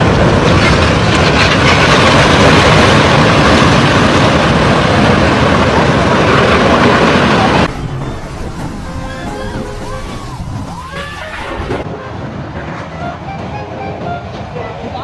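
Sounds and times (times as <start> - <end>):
floodwater rushing: 6.6 - 11.9.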